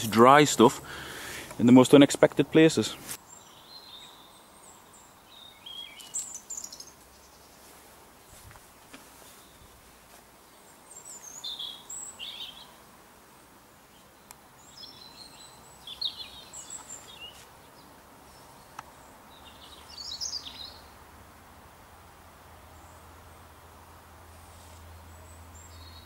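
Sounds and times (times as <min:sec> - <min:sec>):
faint steady hiss: 0:00.0 - 0:26.0
small songbird chirping: 0:03.2 - 0:12.8, 0:13.9 - 0:21.0, 0:24.8 - 0:26.0.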